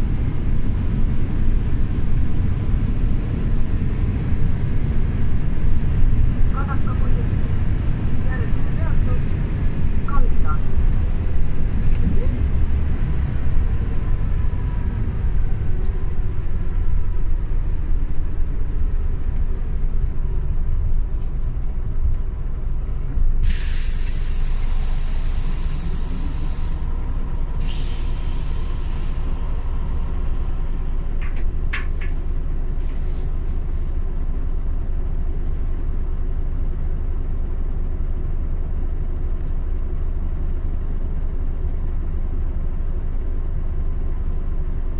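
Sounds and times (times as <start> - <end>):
bus engine rumble: 0.0 - 44.9
compressed air hissing: 23.4 - 27.0, 27.6 - 29.0.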